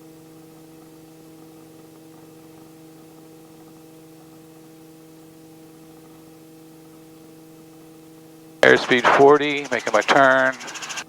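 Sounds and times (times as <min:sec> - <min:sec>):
helicopter hum in flight: 0:08.6 - 0:11.0.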